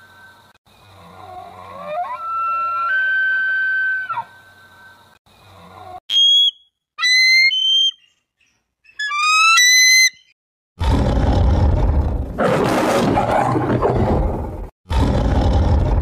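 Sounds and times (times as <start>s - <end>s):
clear whistle-like tone: 6.1s - 8.1s
short rising whistled calls: 6.1s - 10.4s.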